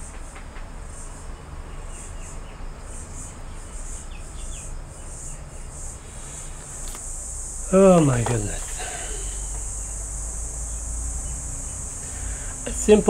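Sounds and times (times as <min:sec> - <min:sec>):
high-pitched insect chirring: 0:02.0 - 0:13.0.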